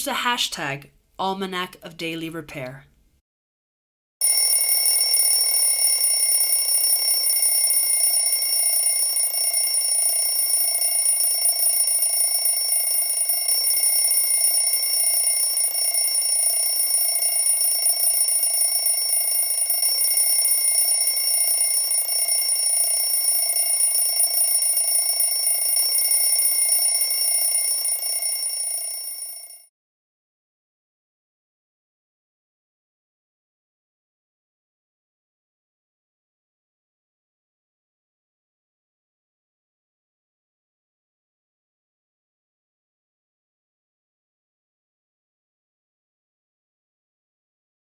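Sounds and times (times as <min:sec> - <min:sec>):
high-pitched multi-tone ringing: 0:04.2 - 0:29.7.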